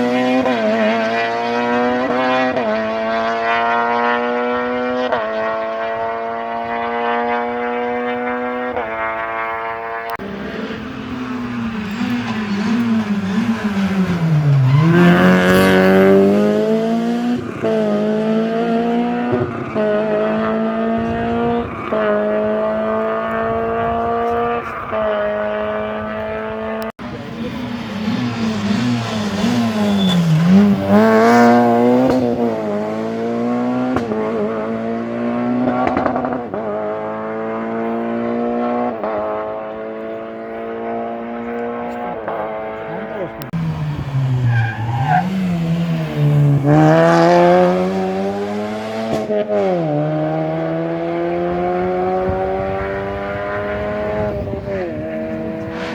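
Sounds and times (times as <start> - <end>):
rally car engine shifting gears: 0.0 - 55.9.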